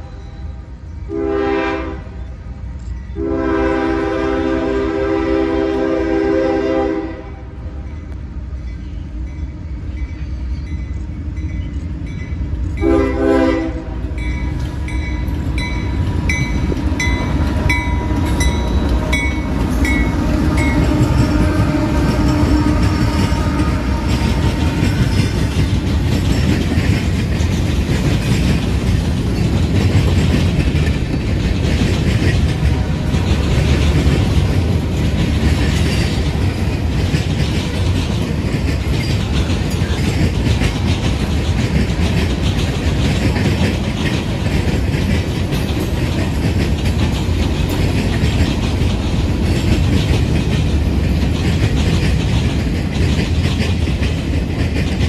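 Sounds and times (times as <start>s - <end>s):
train horn: 0.0s - 2.3s, 3.2s - 7.7s, 12.8s - 14.2s, 17.0s - 25.7s
locomotive rumble: 0.0s - 55.0s
train cars clattering over rails: 8.7s - 55.0s.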